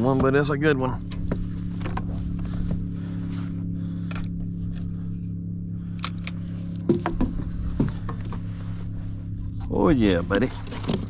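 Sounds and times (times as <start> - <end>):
steady low hum: 0.0 - 11.0
fish and tackle being handled: 6.0 - 11.0.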